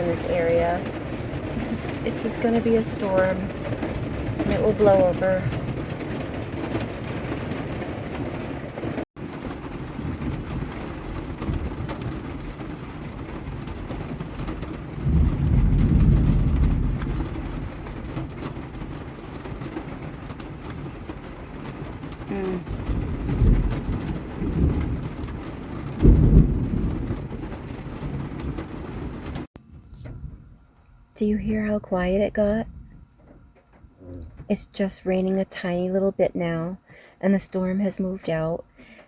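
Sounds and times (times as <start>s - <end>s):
rain on a vehicle roof: 0.0s - 30.2s, 37.6s - 39.0s
thunder rolling: 0.0s - 30.7s.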